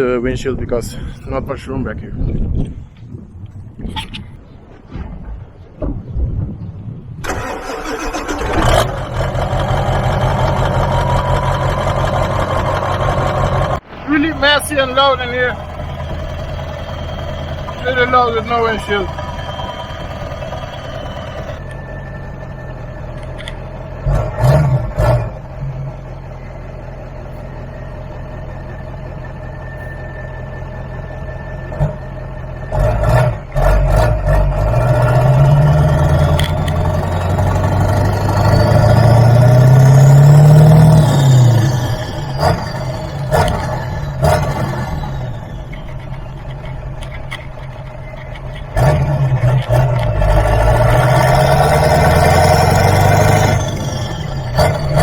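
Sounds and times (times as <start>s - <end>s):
sharp thumps: 2.6s - 7.3s
loud diesel truck engine: 7.2s - 55.0s.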